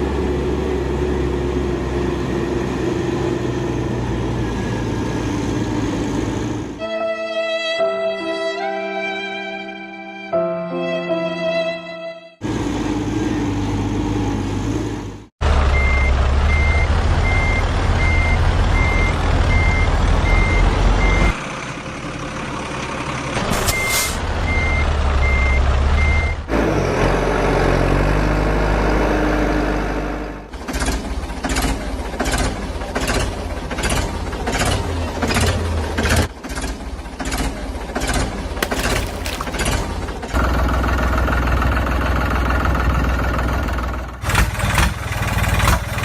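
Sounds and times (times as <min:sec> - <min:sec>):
heavy truck engine running: 0:12.4 - 0:46.0
reversing alarm beeps: 0:15.7 - 0:21.4, 0:23.6 - 0:26.4
air brake hiss: 0:23.5 - 0:24.2.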